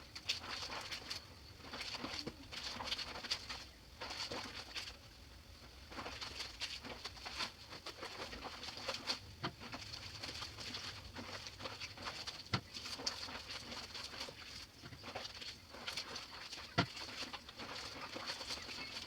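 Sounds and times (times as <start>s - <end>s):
water splashing in a basin: 0.1s - 5.0s, 5.9s - 19.0s
wet fabric scrubbing: 5.9s - 19.0s.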